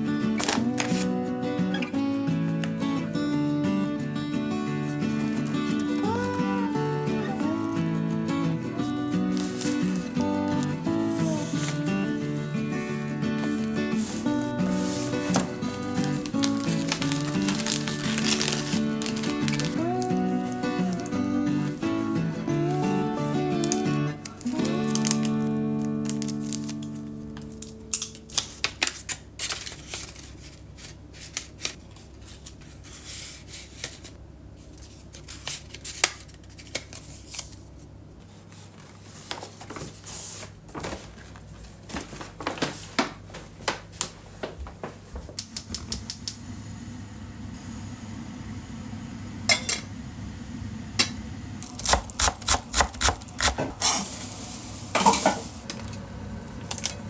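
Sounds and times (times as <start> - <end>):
utensils and dishes clinking: 49.5 - 49.9, 51.0 - 55.8.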